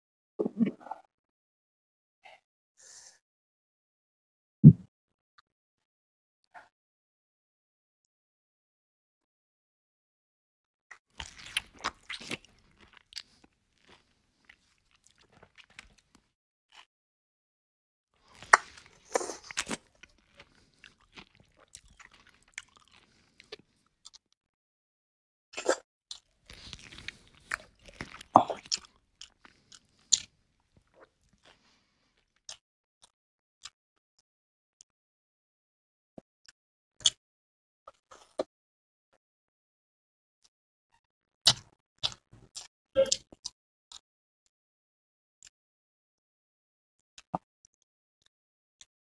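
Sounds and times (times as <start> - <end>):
person chewing: 11.2 - 16.2, 18.2 - 24.2, 26.1 - 31.7
person crunching fried chicken: 11.2 - 16.2, 18.2 - 24.2, 26.1 - 32.0.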